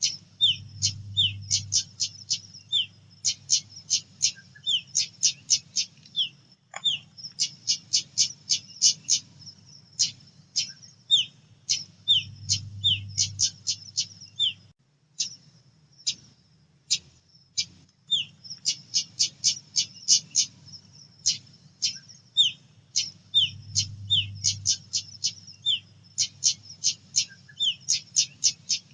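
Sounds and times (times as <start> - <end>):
low background hum: 0.0 - 28.9
bird calling in sharp chips: 1.6 - 9.3.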